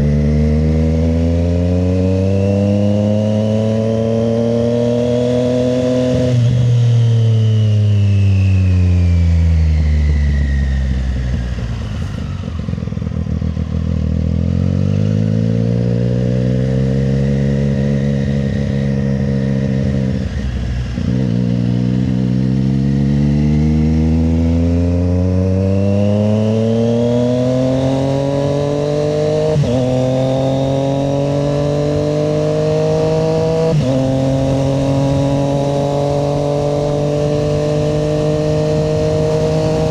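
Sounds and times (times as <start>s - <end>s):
motorcycle engine revving: 0.0s - 39.9s
quick gear upshifts: 9.7s - 39.9s.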